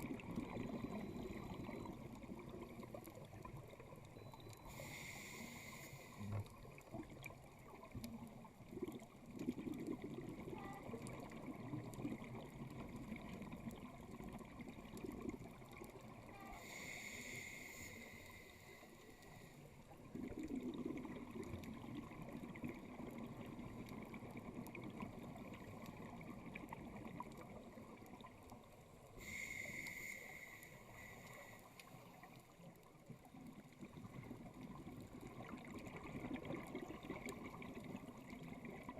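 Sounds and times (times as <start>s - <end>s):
bubbles rumbling and gurgling: 0.0s - 4.6s, 6.2s - 16.5s, 19.8s - 29.1s, 32.1s - 38.9s
regulator breathing hiss: 4.7s - 6.3s, 16.6s - 19.7s, 29.2s - 32.1s.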